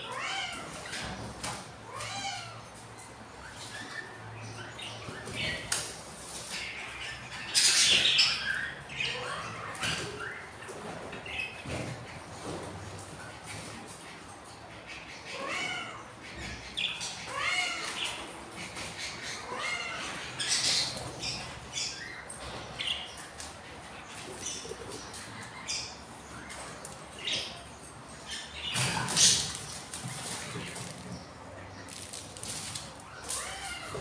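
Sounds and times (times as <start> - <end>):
budgies calling: 14.7 - 34.0.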